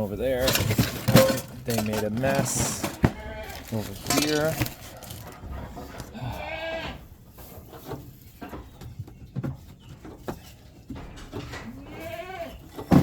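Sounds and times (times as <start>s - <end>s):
goat bleating: 2.9s - 3.8s, 6.1s - 7.1s, 11.8s - 12.6s.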